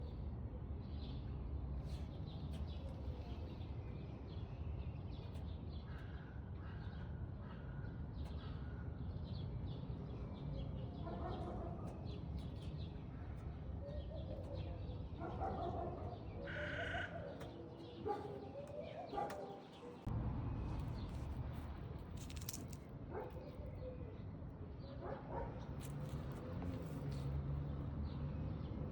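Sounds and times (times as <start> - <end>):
steady low rumble: 20.1 - 23.0.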